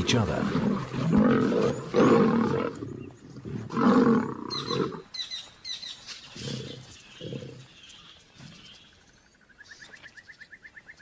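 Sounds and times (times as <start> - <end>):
lions snarling and growling: 0.0 - 5.1, 6.3 - 9.0.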